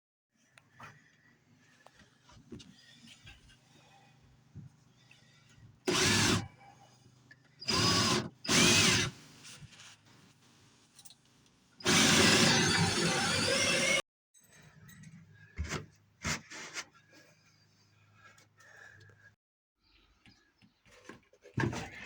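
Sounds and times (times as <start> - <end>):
power drill motor: 5.9 - 6.4, 7.6 - 9.2, 11.8 - 14.0.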